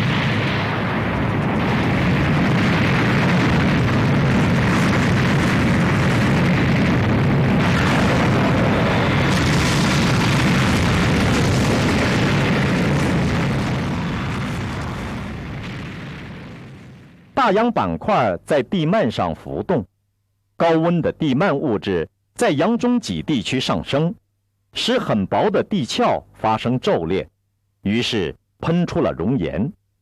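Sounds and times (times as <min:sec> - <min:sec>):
dense loud rumbling: 0:00.0 - 0:17.5.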